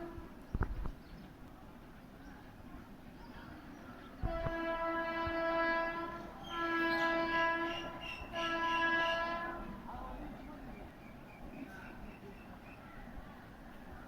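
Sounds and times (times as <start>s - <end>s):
locomotive horn blasts: 0.0s - 0.3s, 4.2s - 9.9s
train passing: 1.3s - 14.0s.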